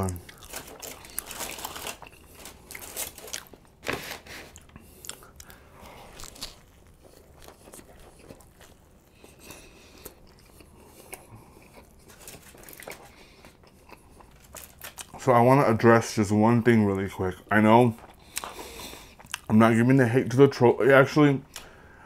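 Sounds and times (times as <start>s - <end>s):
close chewing and biting: 0.0s - 3.6s, 4.5s - 15.2s, 17.9s - 19.5s.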